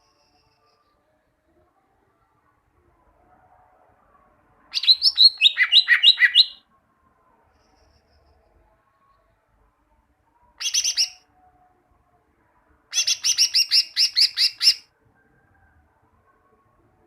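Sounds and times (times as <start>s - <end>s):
bird singing rapid sharp notes: 4.8s - 6.6s.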